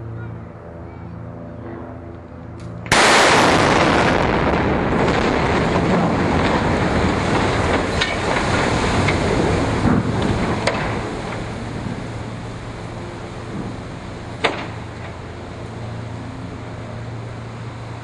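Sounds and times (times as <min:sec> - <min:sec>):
sharp cracks: 0:02.6 - 0:11.5
very loud explosion blast: 0:02.9 - 0:08.9
rumbling roar: 0:02.9 - 0:15.5.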